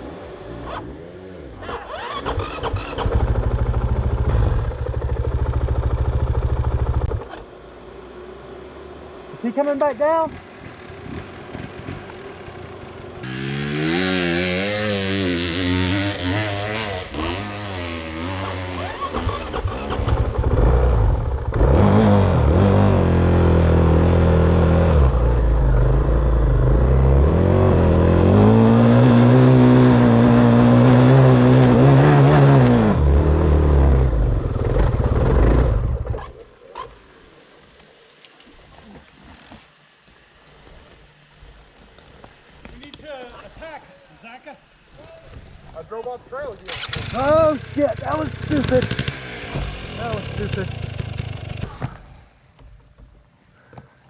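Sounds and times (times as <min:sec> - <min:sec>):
dirt bike engine revving: 0:00.0 - 0:07.4, 0:09.8 - 0:36.9, 0:46.6 - 0:51.8.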